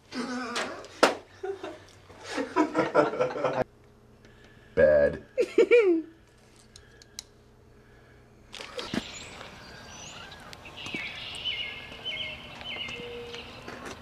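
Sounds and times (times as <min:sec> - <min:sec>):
small birds chirping: 0:08.6 - 0:14.0.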